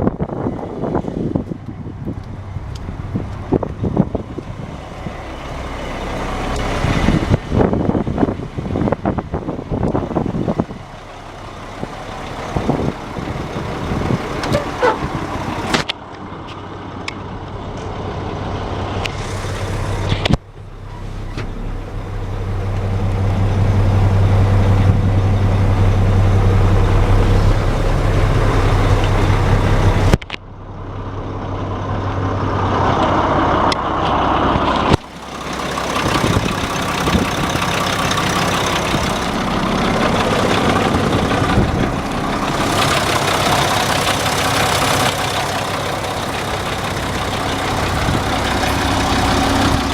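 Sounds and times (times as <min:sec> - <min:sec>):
diesel truck engine running: 0:00.0 - 0:49.9.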